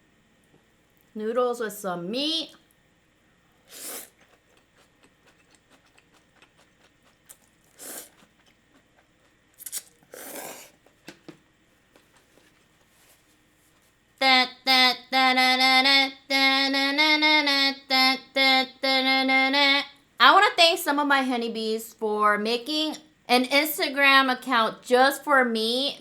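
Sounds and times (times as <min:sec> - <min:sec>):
slurping noodles: 0:03.7 - 0:04.4, 0:07.4 - 0:08.6, 0:09.6 - 0:10.8
faint chewing clicks: 0:03.7 - 0:12.9
woman humming a tune: 0:14.2 - 0:20.0.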